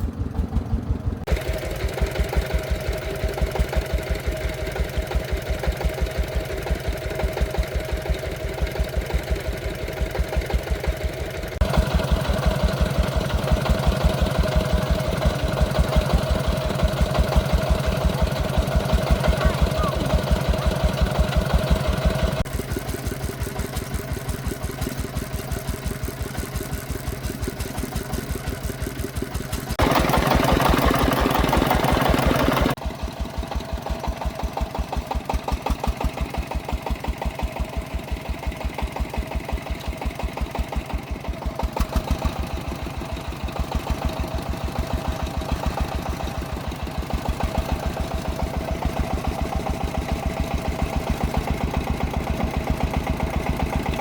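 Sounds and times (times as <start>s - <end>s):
diesel engine chugging: 0.0s - 54.0s.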